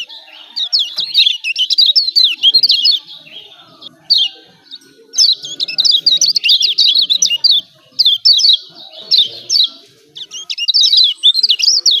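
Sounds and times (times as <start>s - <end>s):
bird rapid high chirping: 0.0s - 12.0s.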